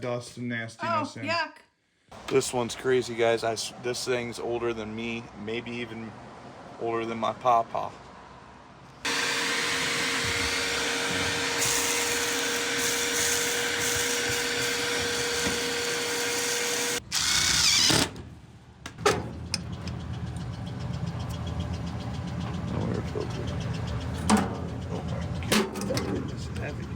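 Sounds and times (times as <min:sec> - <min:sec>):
small electric motor humming: 0:09.1 - 0:17.9.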